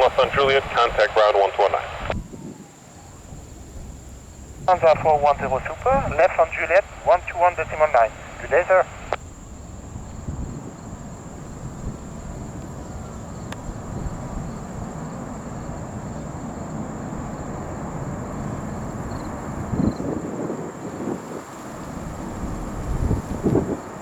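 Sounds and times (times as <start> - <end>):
jet engines rumbling: 0.0 - 24.0
high-pitched insect drone: 9.2 - 24.0.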